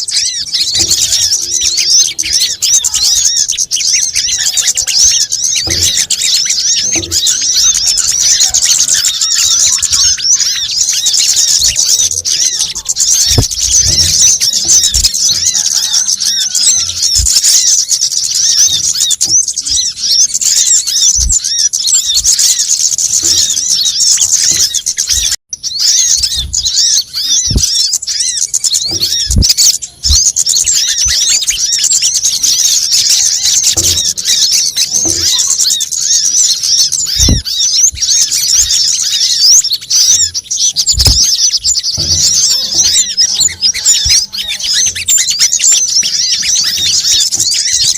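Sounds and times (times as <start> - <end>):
small birds chirping and trilling: 0.0 - 47.9
low thuds: 11.5 - 15.9, 26.0 - 27.8, 28.8 - 30.4, 37.1 - 38.4, 40.8 - 44.5.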